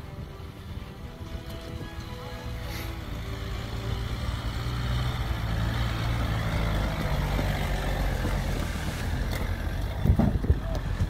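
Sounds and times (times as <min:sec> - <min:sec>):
car engine running: 0:03.0 - 0:11.0.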